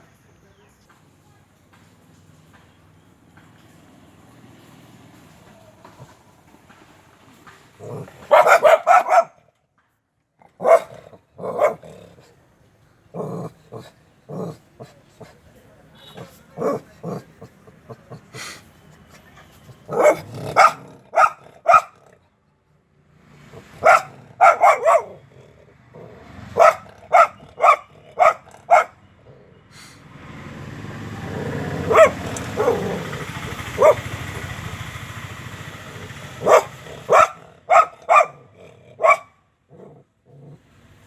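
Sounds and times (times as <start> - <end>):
dog barking: 7.8 - 9.5, 10.5 - 12.3, 16.1 - 18.2, 19.8 - 22.2, 23.5 - 25.3, 26.2 - 29.0, 31.5 - 34.2, 36.4 - 40.0
dog yelping: 8.0 - 9.4, 10.6 - 11.8, 19.9 - 22.0, 23.6 - 25.2, 26.1 - 29.0, 31.5 - 34.1, 36.4 - 38.4, 39.0 - 39.4.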